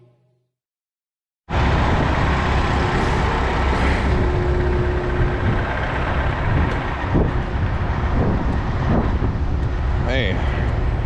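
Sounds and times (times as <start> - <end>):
diesel truck engine rumbling: 1.5 - 11.0
steady tone: 2.1 - 7.3.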